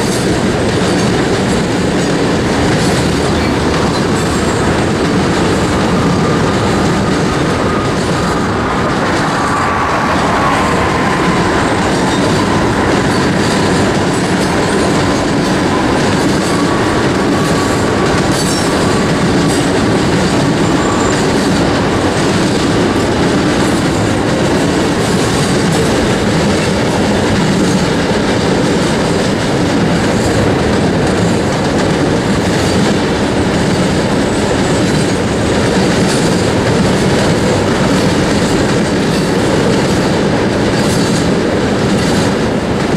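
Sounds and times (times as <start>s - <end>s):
train cars rumbling past: 0.0s - 42.9s
wheels clacking over rail joints: 0.0s - 42.9s
faint wheel squeal: 5.6s - 17.8s, 20.4s - 21.6s.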